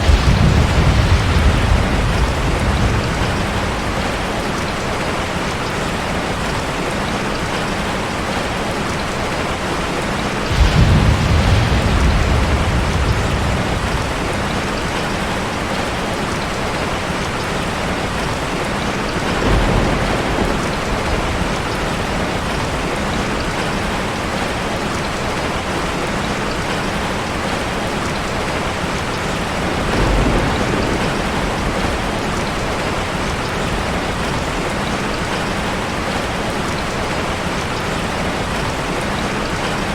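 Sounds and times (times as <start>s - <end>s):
thunder rumbling: 0.0s - 6.8s, 10.2s - 25.5s, 28.3s - 36.9s
heavy rain hitting a car: 0.0s - 39.9s.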